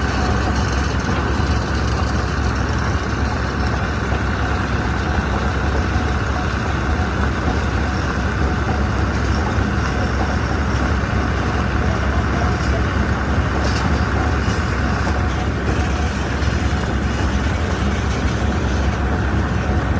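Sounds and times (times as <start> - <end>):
stone crusher machinery drone: 0.0 - 19.9.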